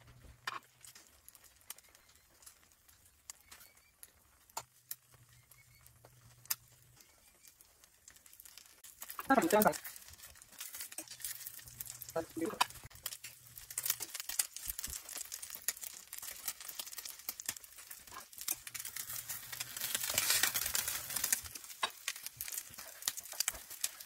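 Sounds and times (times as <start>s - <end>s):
omelette sizzling in oil: 0.0s - 24.0s
spatula scraping pan: 15.0s - 24.0s.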